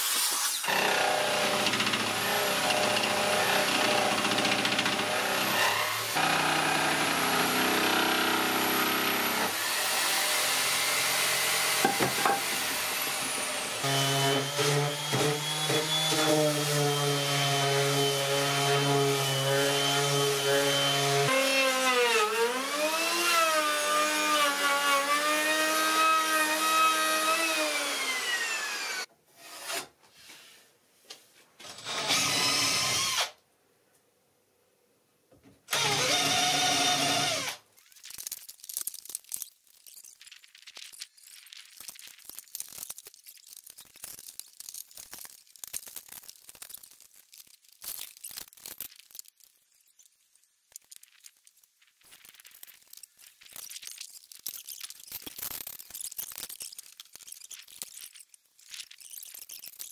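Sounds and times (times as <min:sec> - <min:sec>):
electric router cutting wood: 0:00.1 - 0:29.1, 0:35.7 - 0:37.6
cordless drill running: 0:27.8 - 0:29.8, 0:31.7 - 0:33.4, 0:35.7 - 0:37.6.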